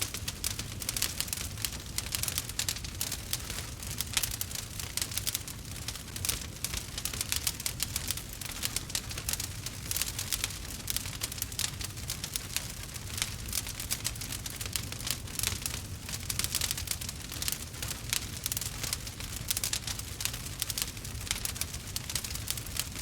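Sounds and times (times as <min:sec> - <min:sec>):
burning wood crackling: 0:00.0 - 0:23.0.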